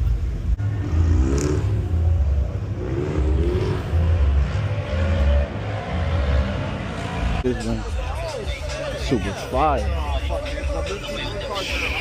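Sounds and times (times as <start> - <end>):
car engine revving: 0.4 - 7.8.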